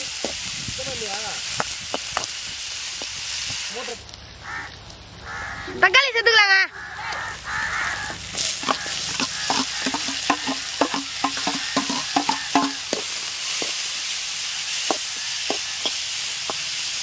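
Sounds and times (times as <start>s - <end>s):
onions sizzling in oil: 0.0s - 17.0s
metal spatula clinking on wok: 9.2s - 12.9s.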